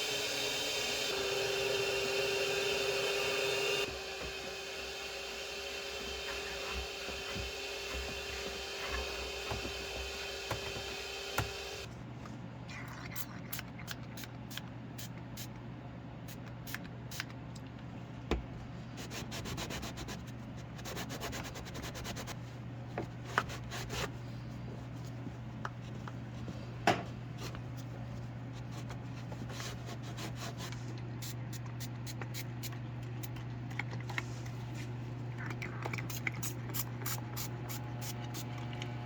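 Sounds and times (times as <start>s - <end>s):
scrubbing a surface: 27.4s - 30.9s.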